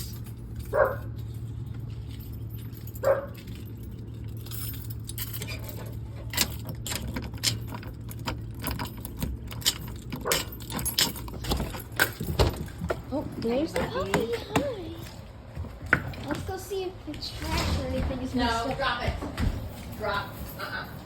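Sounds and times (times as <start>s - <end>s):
keys jangling: 0.0s - 15.1s
sharp clicks and rattles: 0.0s - 15.2s.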